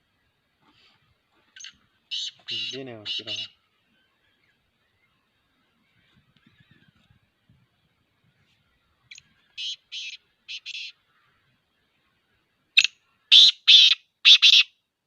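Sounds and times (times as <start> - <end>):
francolin harsh grating calls: 1.6 - 3.6, 9.6 - 11.0.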